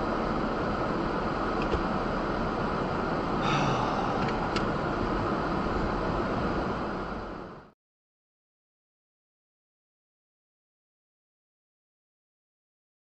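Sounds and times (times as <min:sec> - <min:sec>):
vehicle rumbling: 0:00.0 - 0:07.7.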